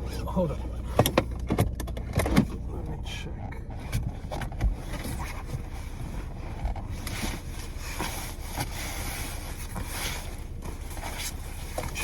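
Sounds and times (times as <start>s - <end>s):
rustling: 3.8s - 12.0s.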